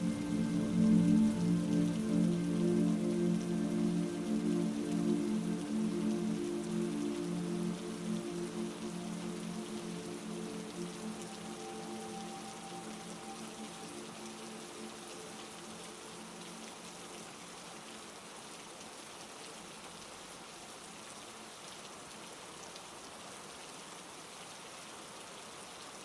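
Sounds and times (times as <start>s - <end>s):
sustained low tones: 0.0s - 11.5s
heavy rain: 0.0s - 26.0s.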